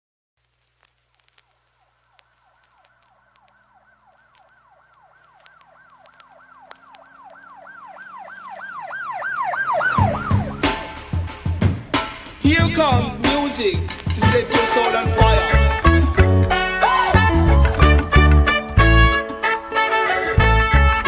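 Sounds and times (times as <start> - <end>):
siren-like swooping wail: 3.1 - 12.0
hip-hop track with heavy beat: 9.9 - 21.0.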